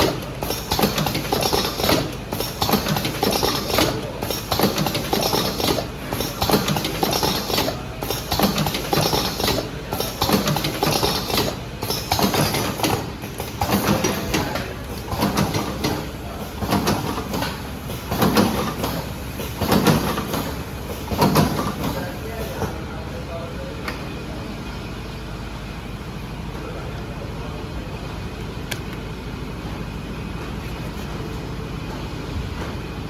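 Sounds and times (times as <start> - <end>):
cartoning machine clattering: 0.0 - 22.7.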